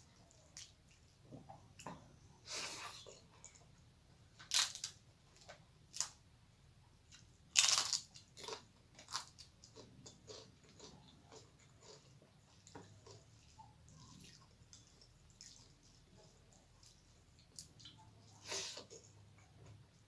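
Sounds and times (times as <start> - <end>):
soft chewing: 0.0 - 6.2, 6.8 - 20.0
crisp crunching: 7.5 - 11.4.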